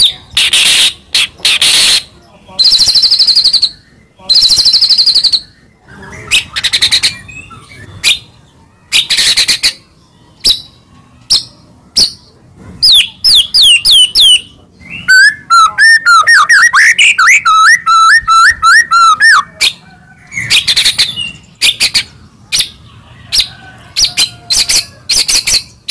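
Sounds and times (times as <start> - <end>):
bird singing rattling and whistles: 0.0 - 5.6, 10.4 - 19.8.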